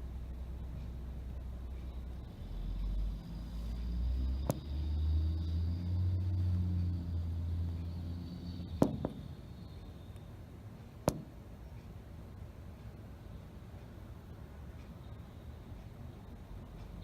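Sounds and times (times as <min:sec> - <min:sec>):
sharp knocks: 0:08.8 - 0:09.3, 0:11.0 - 0:11.4.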